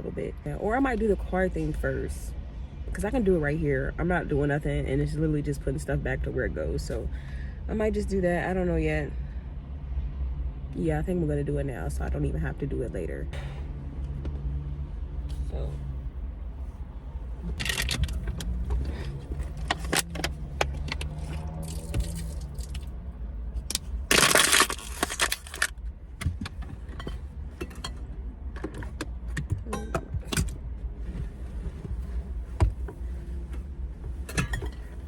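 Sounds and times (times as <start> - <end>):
clicks and knocks of belongings: 23.6 - 27.1.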